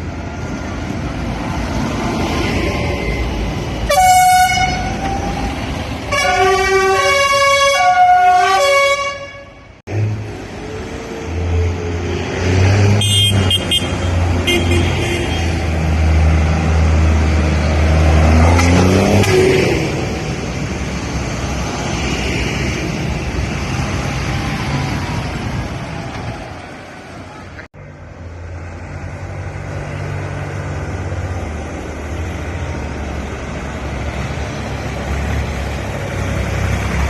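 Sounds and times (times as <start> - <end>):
vehicle horn tooting: 3.9 - 5.0, 6.1 - 9.6, 13.0 - 15.6.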